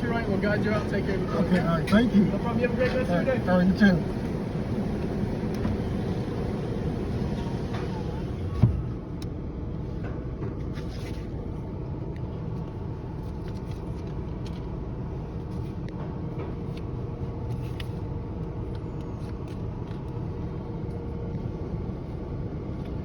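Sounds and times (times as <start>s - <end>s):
truck engine idling: 0.0s - 9.2s.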